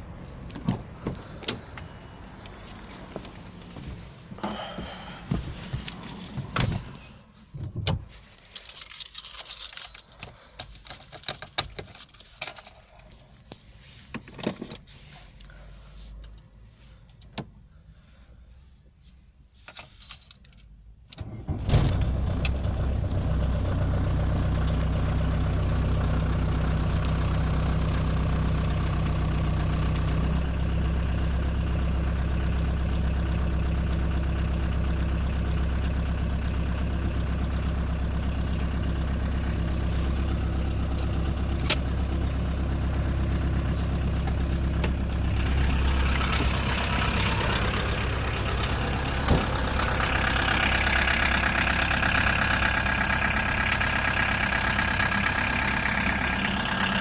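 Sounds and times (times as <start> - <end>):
diesel engine starting and idling: 0.0 - 14.1, 20.7 - 57.0.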